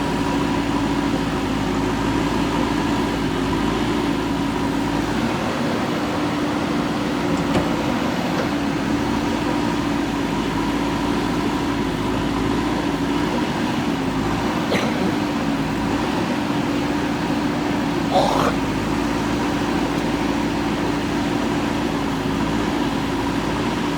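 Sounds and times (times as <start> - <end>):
diesel engine running steadily: 0.0 - 23.9.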